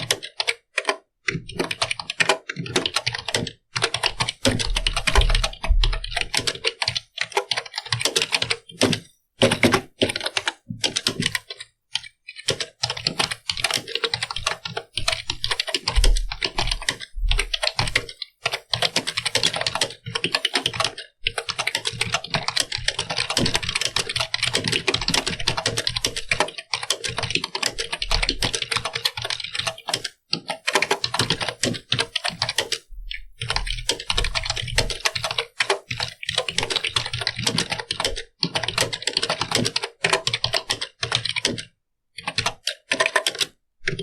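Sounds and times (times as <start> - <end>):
computer keyboard typing: 0.0 - 44.0.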